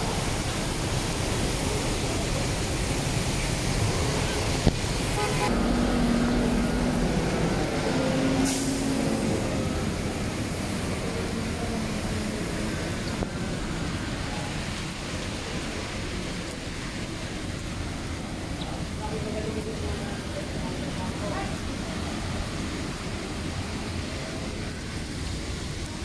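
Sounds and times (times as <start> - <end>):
heavy rain on street: 0.0 - 26.0
traffic: 0.0 - 26.0
passing vehicle drone: 5.1 - 12.6.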